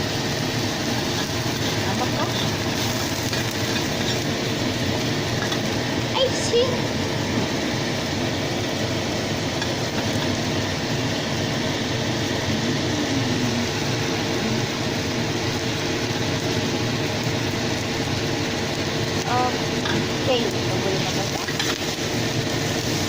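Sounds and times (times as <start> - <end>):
bean sprouts sizzling in a pan: 0.0 - 23.0.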